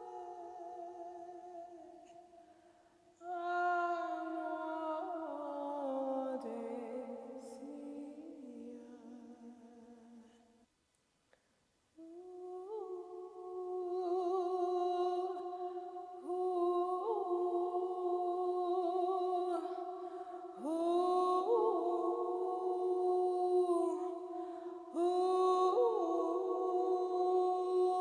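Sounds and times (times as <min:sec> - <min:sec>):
person humming: 0:12.0 - 0:15.4.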